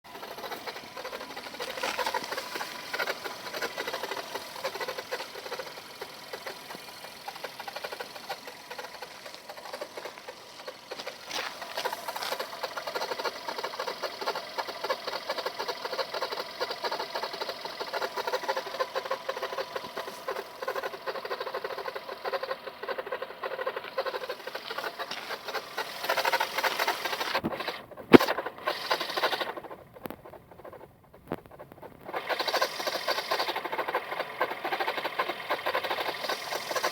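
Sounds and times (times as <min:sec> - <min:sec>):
engine ticking clatter: 0:00.0 - 0:36.9
sharp click: 0:27.4 - 0:28.4.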